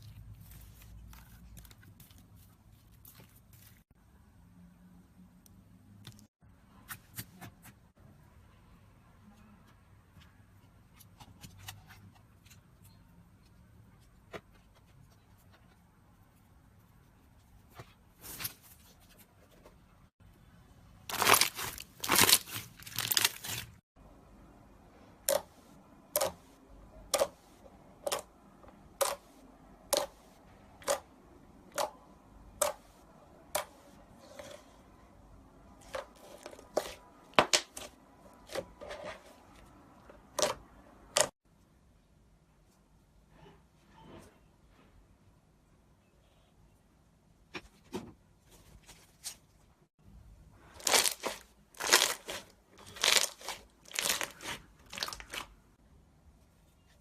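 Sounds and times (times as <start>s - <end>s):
slime crackling and tearing: 21.1s - 23.8s, 50.8s - 55.5s.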